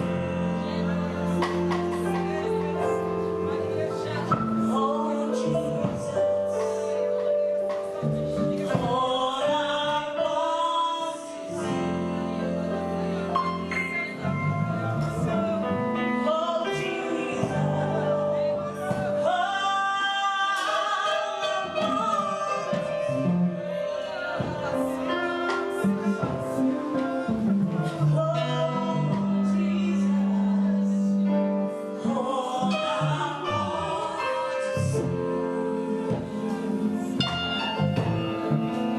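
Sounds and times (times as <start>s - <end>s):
gospel singing: 0.0s - 38.9s
sustained accompaniment: 11.4s - 38.9s.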